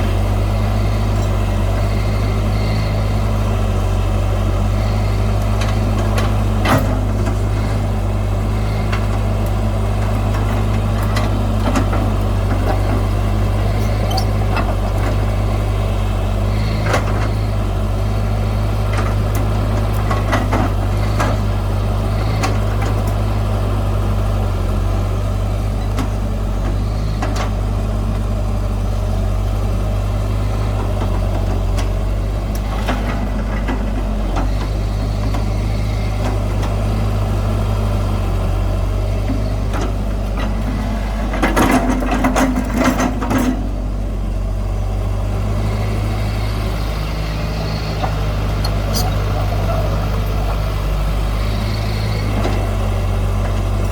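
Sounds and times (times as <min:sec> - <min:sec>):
diesel machinery engine drone: 0:00.0 - 0:53.9.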